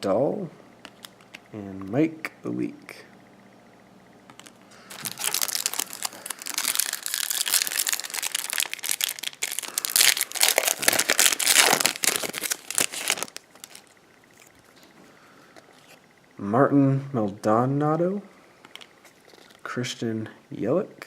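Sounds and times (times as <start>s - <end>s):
card pack wrapper crinkling: 4.3s - 14.6s, 18.7s - 19.6s.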